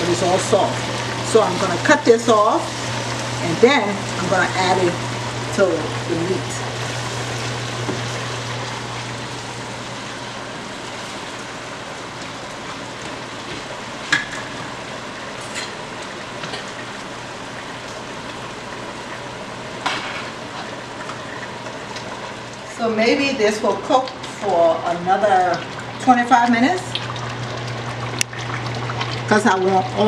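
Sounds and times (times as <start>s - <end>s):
eggplant sizzling in oil: 0.0s - 30.0s
utensils knocking against pots: 15.4s - 15.8s.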